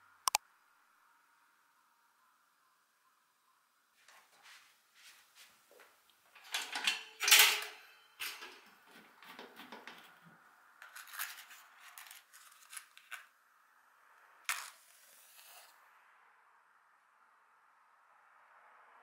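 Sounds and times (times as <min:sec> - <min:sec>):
metal heater guard clicking and clattering: 0:06.3 - 0:10.4.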